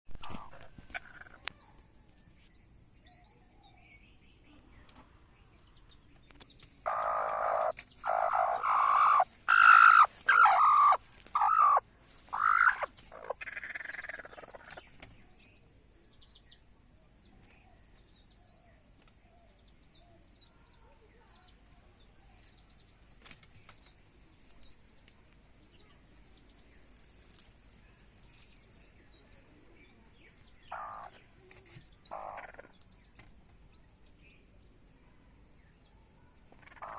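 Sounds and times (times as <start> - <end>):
small birds chirping: 0.1 - 36.9
hen calling loudly: 6.8 - 14.6.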